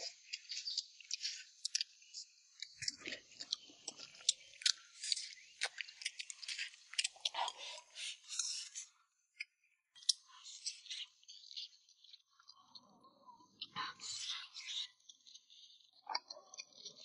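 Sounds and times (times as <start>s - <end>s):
wet chewing and lip smacks: 0.4s - 1.9s, 2.6s - 8.9s.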